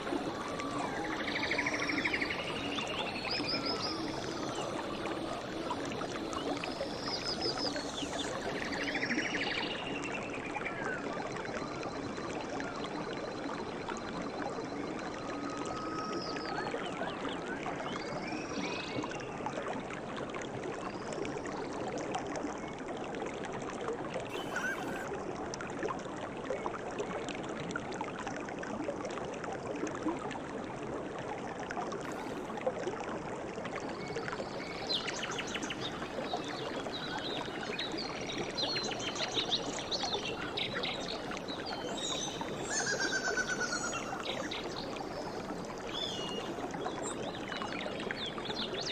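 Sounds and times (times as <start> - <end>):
stream babbling and trickling: 0.0 - 48.9
bird chirps: 24.3 - 25.1.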